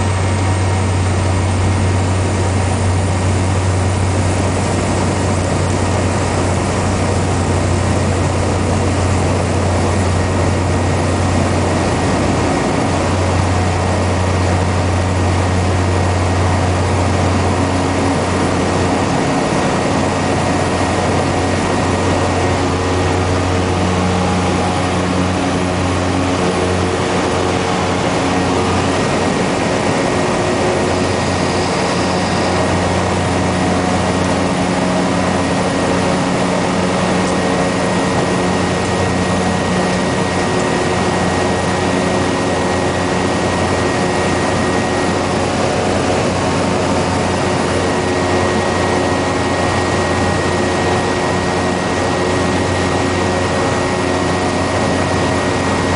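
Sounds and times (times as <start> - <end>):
turboprop engine droning: 0.0 - 55.9.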